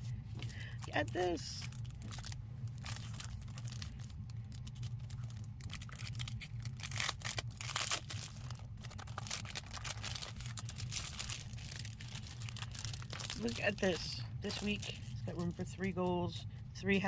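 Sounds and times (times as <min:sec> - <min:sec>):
low steady hum: 0:00.0 - 0:17.0
paper rustling and crinkling: 0:00.8 - 0:15.9
envelope tearing open: 0:01.6 - 0:13.7.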